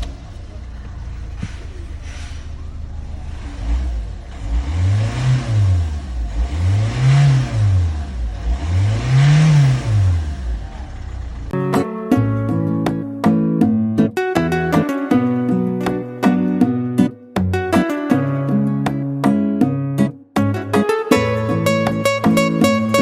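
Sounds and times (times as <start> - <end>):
car engine idling and revving: 0.0 - 11.6.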